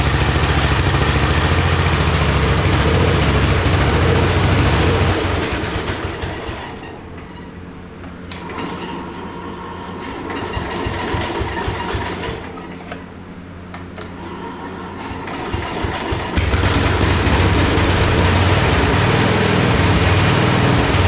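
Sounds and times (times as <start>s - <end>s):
small engine pulsing: 0.0s - 7.0s, 14.1s - 21.0s.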